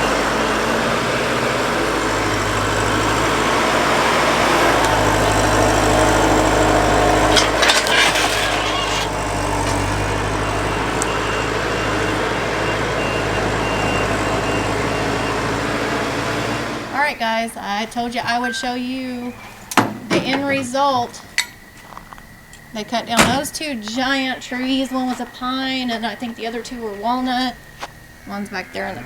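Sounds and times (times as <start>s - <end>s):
heavy diesel engine running: 0.0s - 29.0s
short clatter: 7.1s - 10.0s
faint repeating beeps: 18.0s - 19.7s.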